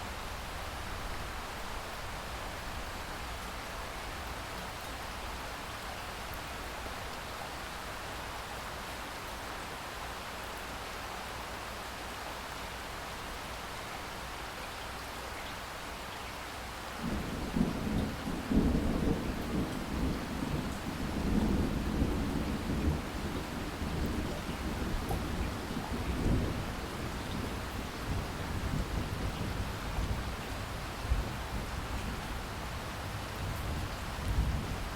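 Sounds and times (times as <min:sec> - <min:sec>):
steady rain: 0:00.0 - 0:34.9
rolling thunder rumble: 0:17.0 - 0:30.4.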